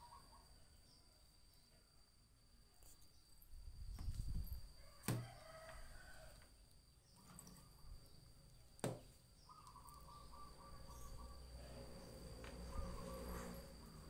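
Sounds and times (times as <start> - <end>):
thin insect whine: 0.0 - 14.0
short bird calls: 9.4 - 13.8.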